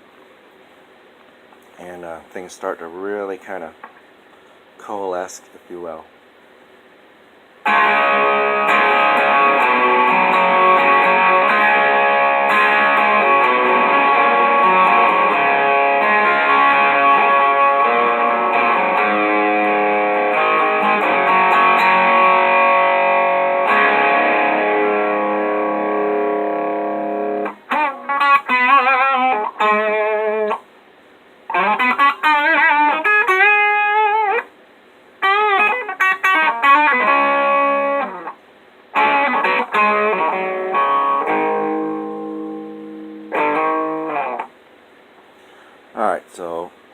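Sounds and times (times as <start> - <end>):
electric guitar playing: 7.6 - 30.6, 31.5 - 34.5, 35.2 - 44.6.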